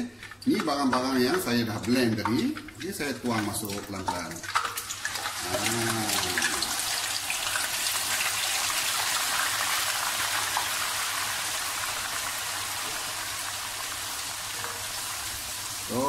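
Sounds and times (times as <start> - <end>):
paste sizzling in a wok: 3.8 - 16.0.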